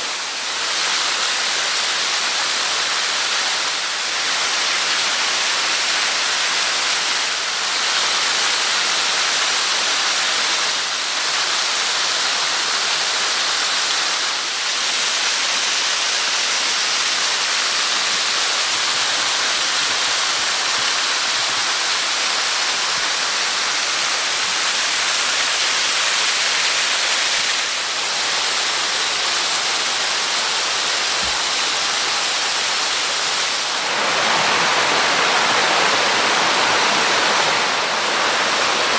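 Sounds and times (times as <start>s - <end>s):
stream and waterfall rushing: 0.0s - 38.9s.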